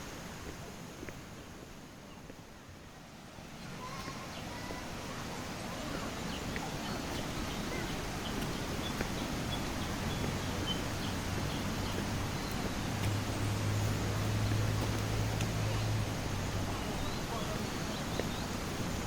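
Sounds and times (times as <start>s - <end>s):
steady rushing noise: 0.0s - 19.0s
bird chirping: 5.9s - 14.8s.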